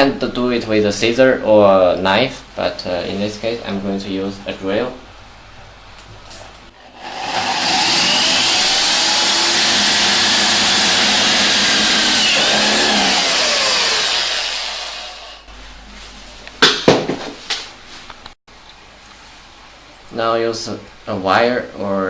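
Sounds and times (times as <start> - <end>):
power drill drilling plastic: 7.0 - 15.5.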